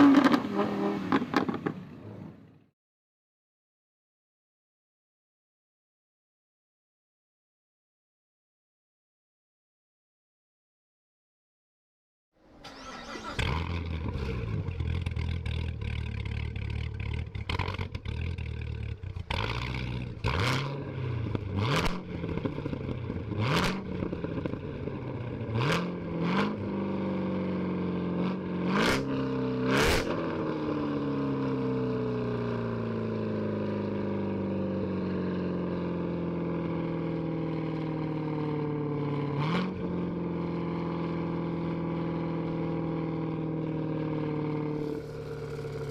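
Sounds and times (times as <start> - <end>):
car engine revving: 0.0 - 1.8, 12.6 - 33.7, 39.1 - 45.9.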